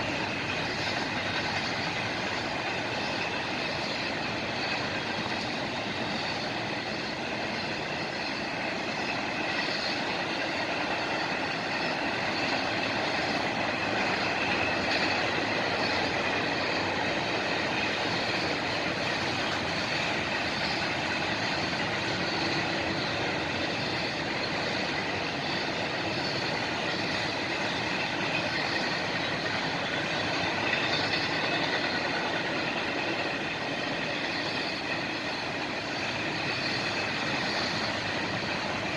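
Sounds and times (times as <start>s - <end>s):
freight train wheels on track: 0.0s - 38.9s.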